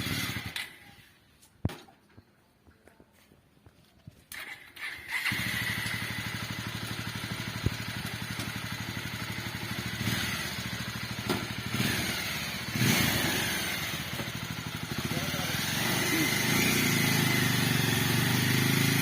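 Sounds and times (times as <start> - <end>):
motorcycle engine starting and running: 0.0 - 1.9, 4.1 - 19.0.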